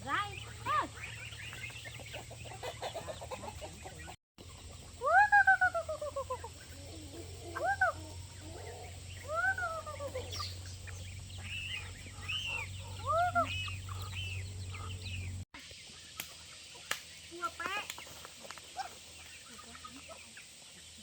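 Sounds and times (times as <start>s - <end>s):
chickens squawking: 0.0s - 21.0s
steady low hum: 3.7s - 17.3s.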